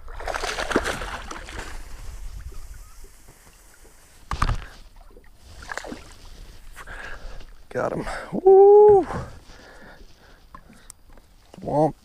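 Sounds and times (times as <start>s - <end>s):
water lapping around kayak: 0.0s - 8.3s, 9.0s - 12.0s
loud splash: 0.1s - 1.8s.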